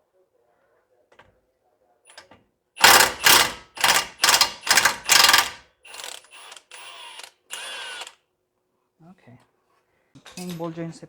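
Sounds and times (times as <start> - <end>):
impact wrench hammering: 2.8 - 6.7
impact wrench whirring: 2.8 - 8.2.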